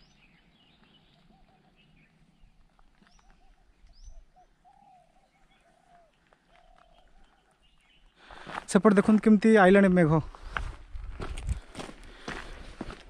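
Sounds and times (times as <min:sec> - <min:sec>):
faint birdsong: 0:00.0 - 0:08.8.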